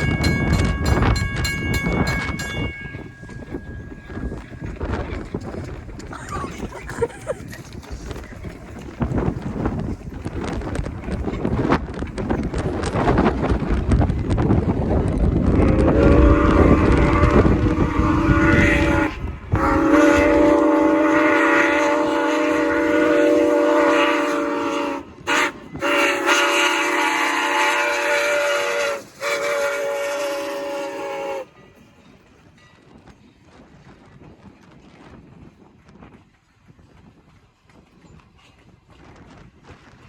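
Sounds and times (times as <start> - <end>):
train chime horn blasts: 0.0 - 5.3, 15.6 - 31.8
rumble of passing train: 0.0 - 40.0.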